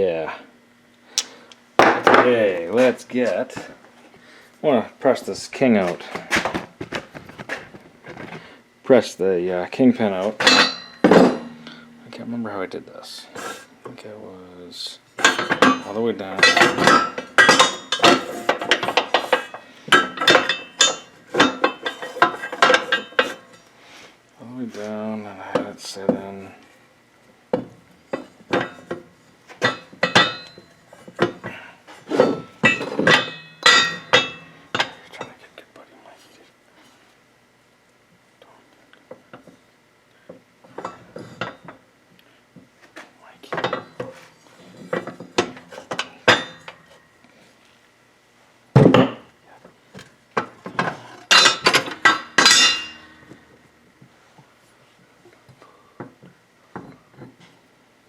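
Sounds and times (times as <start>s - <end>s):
metal tools clanking on bench: 10.2s - 12.2s, 15.2s - 23.6s, 28.1s - 29.0s, 29.6s - 31.4s, 32.1s - 35.2s, 43.6s - 44.2s, 44.8s - 46.9s, 50.4s - 53.4s
steel parts clinking together: 10.4s - 12.1s, 15.2s - 23.6s, 29.6s - 30.7s, 32.2s - 35.2s, 50.8s - 53.4s.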